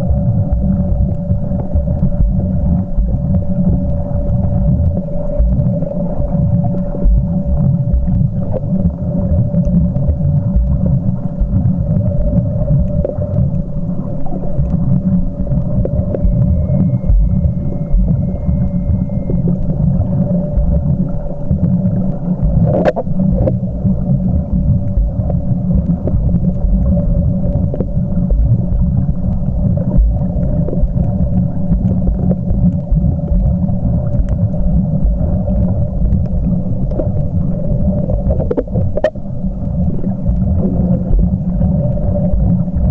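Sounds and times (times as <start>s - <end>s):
muffled underwater rumble: 0.0s - 42.9s
steady hum: 0.0s - 42.9s.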